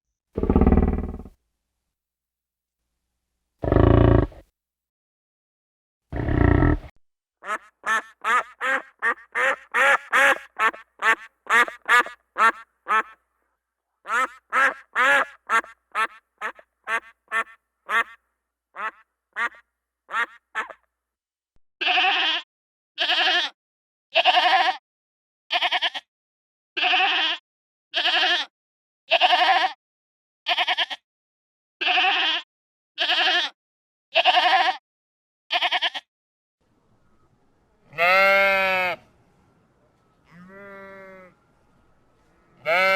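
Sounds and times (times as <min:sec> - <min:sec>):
duck quacking: 0:06.2 - 0:13.2, 0:14.1 - 0:18.2, 0:18.8 - 0:20.8.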